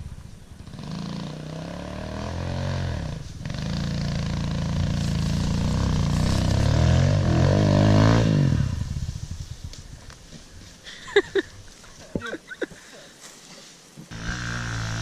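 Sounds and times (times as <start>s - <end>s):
motorcycle engine accelerating: 0.0s - 10.1s, 14.1s - 15.0s.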